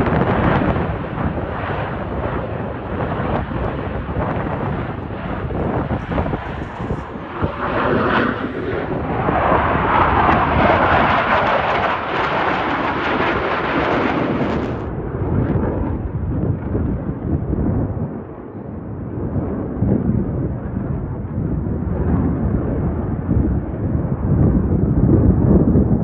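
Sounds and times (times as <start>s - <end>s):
jet roar flying past: 0.0s - 17.2s.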